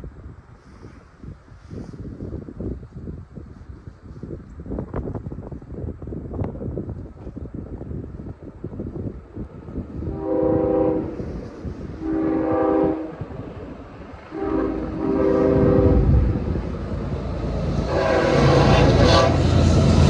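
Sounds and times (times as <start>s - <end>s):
train rumble: 6.9s - 20.0s
locomotive air horn blasts: 10.1s - 13.3s, 14.3s - 16.4s, 17.7s - 20.0s.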